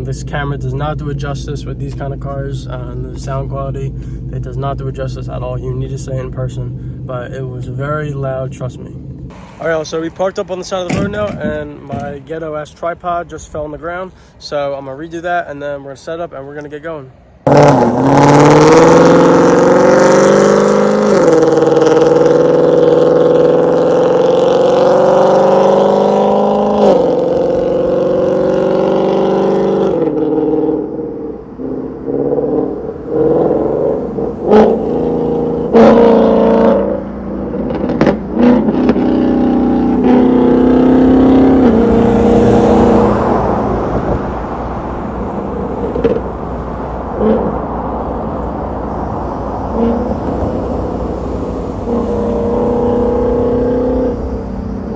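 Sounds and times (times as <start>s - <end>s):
exhaust cracks: 0.0s - 14.0s, 16.0s - 54.9s
car engine accelerating hard: 17.2s - 54.9s.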